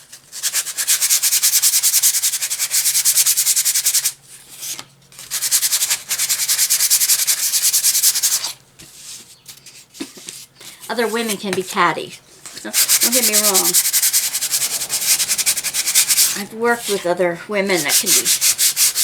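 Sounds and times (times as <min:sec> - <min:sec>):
sandpaper rubbing on wood: 0:05.2 - 0:08.5, 0:12.7 - 0:17.1, 0:17.8 - 0:19.0.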